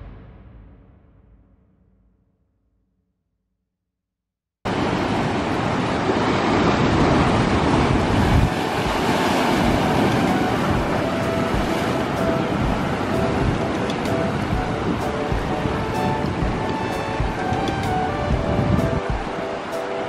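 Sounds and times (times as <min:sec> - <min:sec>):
surf breaking on rocks: 0:04.7 - 0:19.7
wind buffeting microphone: 0:04.7 - 0:19.7.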